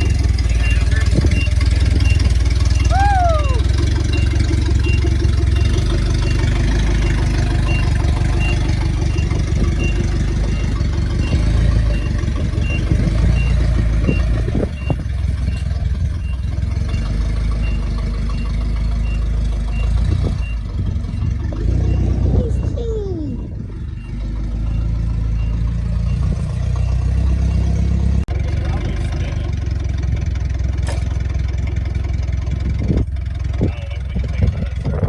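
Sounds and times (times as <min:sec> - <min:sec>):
reversing alarm beeping: 0:00.0 - 0:27.9
vehicle engine running: 0:00.0 - 0:35.0.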